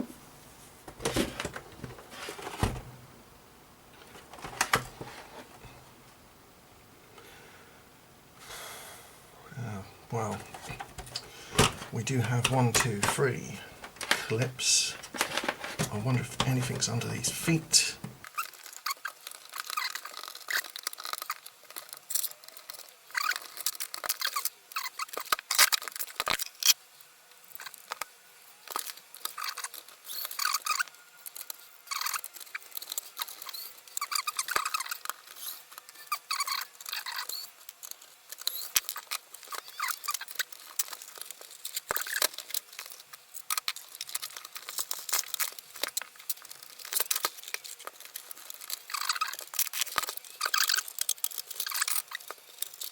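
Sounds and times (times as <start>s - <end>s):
hands scraping plastic casing: 0.9s - 3.0s, 4.0s - 5.6s, 10.2s - 18.2s.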